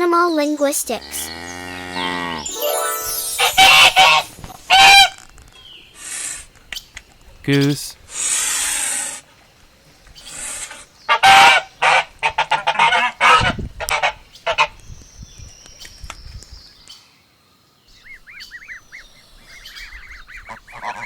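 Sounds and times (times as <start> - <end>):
soft high peeping calls: 17.9 - 21.0.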